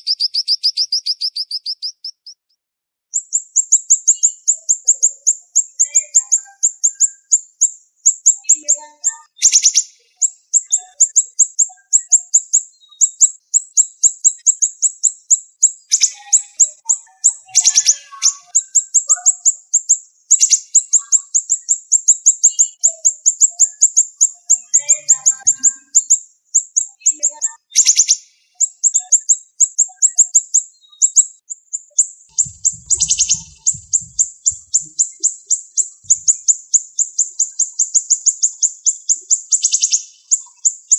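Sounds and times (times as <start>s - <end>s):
songbird chirping: 0.0s - 40.9s
bird rattling burst: 32.4s - 34.9s.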